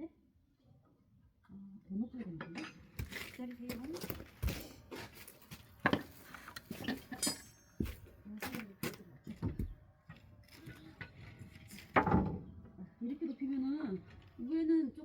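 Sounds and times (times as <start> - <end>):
ringing metallic clink: 7.2 - 7.8.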